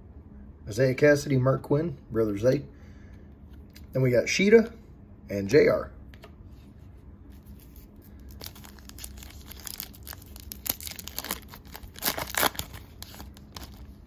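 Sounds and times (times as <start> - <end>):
wrapper tearing and crinkling: 7.4 - 14.0.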